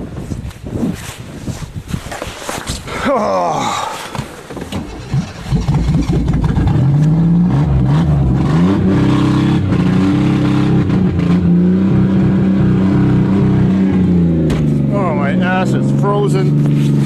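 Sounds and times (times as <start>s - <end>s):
car engine starting and revving: 4.7s - 17.0s.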